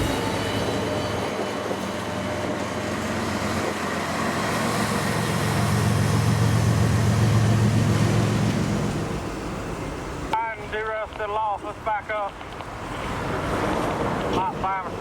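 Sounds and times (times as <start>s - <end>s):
diesel locomotive engine humming: 0.0s - 12.0s.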